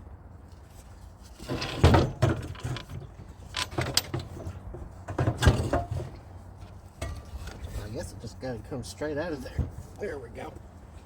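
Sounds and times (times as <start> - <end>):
metal clunks and scrapes: 0.7 - 7.9, 9.4 - 10.0.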